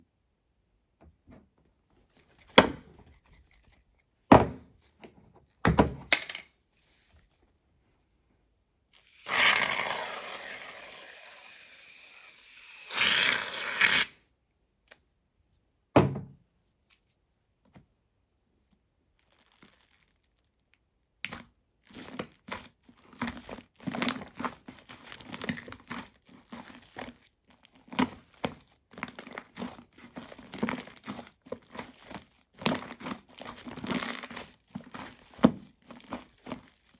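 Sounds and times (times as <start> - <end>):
aerosol foam spraying: 9.0 - 14.1.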